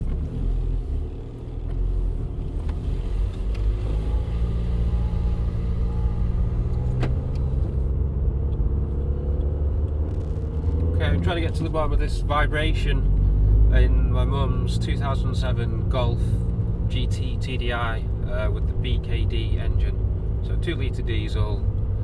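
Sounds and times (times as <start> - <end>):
diesel engine humming drone: 0.0 - 22.0.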